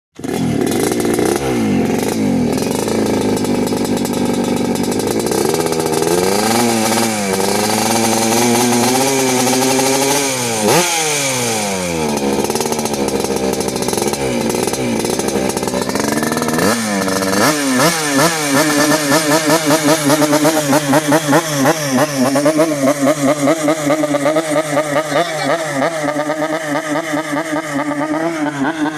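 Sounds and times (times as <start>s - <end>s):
two-stroke motorcycle engine revving: 0.2s - 28.9s.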